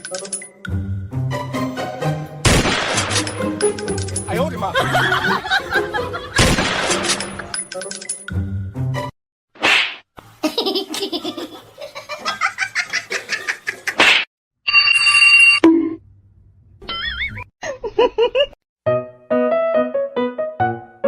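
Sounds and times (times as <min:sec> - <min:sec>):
music: 0:00.0 - 0:09.1, 0:18.9 - 0:21.0
bursts of laughter: 0:04.7 - 0:06.4.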